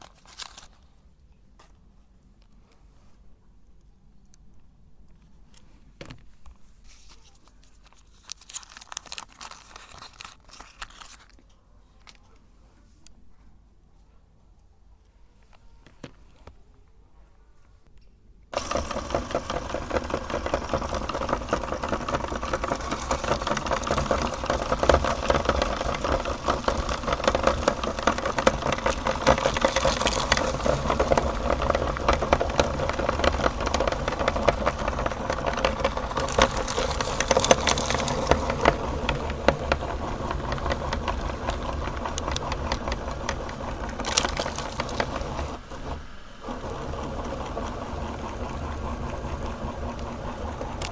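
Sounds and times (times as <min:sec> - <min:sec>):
crackle of grinding chocolate: 0:00.0 - 0:00.9, 0:07.1 - 0:12.3, 0:18.6 - 0:50.9
electric meat grinder running: 0:18.6 - 0:50.9.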